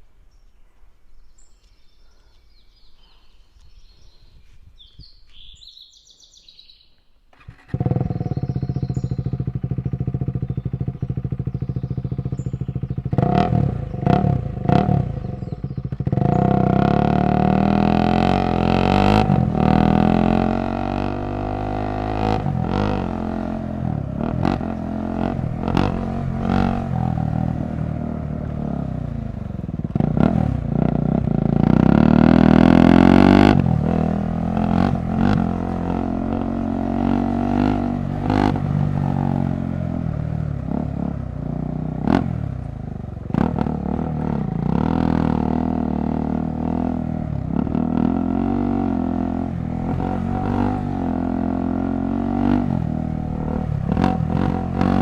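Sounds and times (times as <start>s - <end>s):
motorcycle engine revving: 7.3s - 55.0s.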